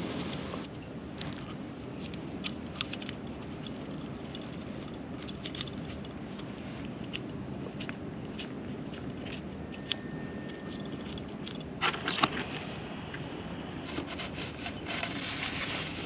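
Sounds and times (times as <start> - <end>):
low background noise: 0.0 - 16.0
light clicks and metallic clinks: 9.8 - 11.7.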